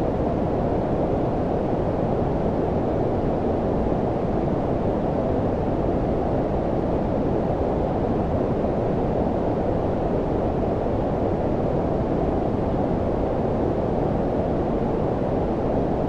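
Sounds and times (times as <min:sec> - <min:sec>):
low brown noise rumble: 0:00.0 - 0:16.0.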